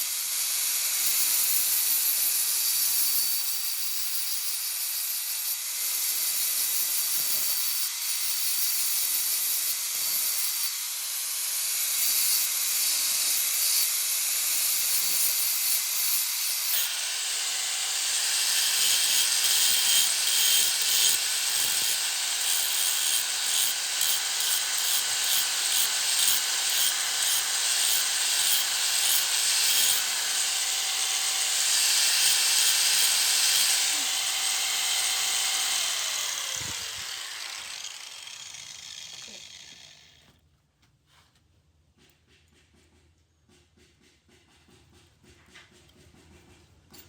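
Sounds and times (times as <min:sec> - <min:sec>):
tool rasping on steel: 0:14.5 - 0:40.2.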